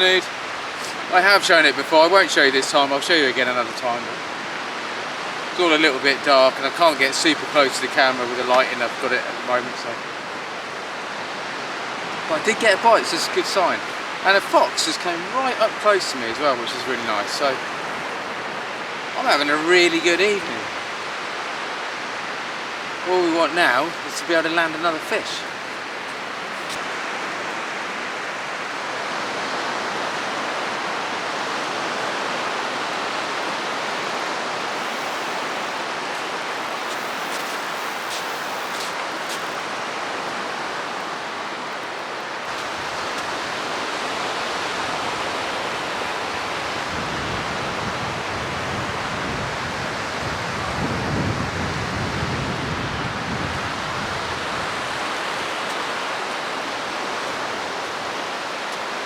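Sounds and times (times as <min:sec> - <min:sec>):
sea surf on rocks: 0:00.0 - 0:59.0
strong wind: 0:00.0 - 0:59.0
wind buffeting microphone: 0:46.1 - 0:56.0.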